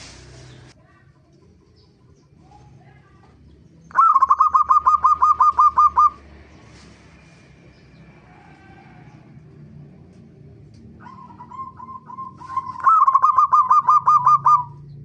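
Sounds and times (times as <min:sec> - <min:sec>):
dove calling: 0:00.0 - 0:00.8, 0:03.6 - 0:07.0, 0:10.8 - 0:15.0.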